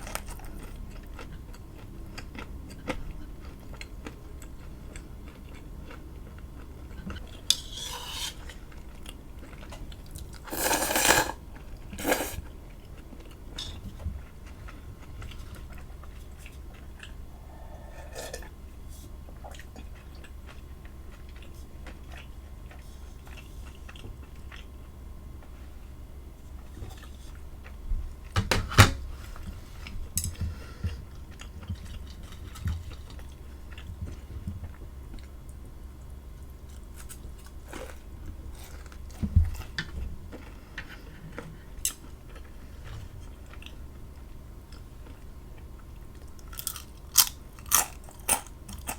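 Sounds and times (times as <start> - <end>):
person chewing food: 0.0 - 25.6, 29.4 - 48.9.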